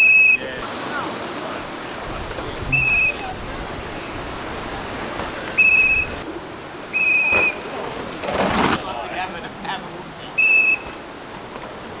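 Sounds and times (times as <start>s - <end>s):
wind buffeting microphone: 0.6s - 10.1s
trilling whistle blasts: 2.6s - 3.4s, 5.5s - 6.2s, 6.9s - 7.7s, 10.4s - 11.0s.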